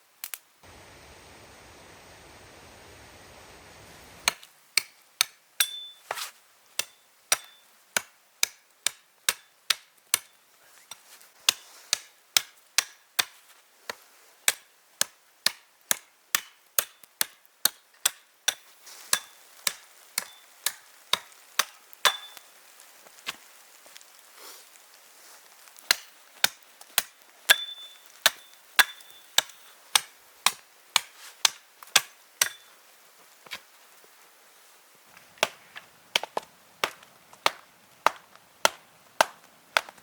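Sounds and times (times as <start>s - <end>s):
steady hiss: 0.0s - 8.4s, 10.2s - 12.4s, 18.4s - 39.8s
hand tool blows ringing: 27.5s - 29.4s.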